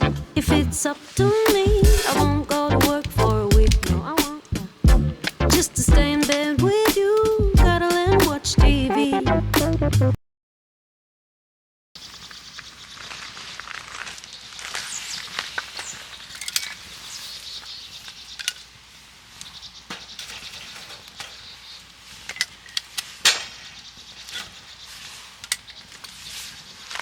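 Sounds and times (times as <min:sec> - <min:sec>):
steady high hiss: 0:00.0 - 0:08.4.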